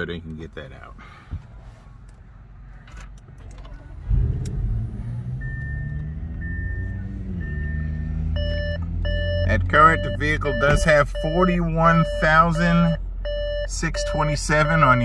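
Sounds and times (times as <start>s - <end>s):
car engine starting and idling: 0.0s - 15.0s
seatbelt warning chime beeping: 5.4s - 15.0s.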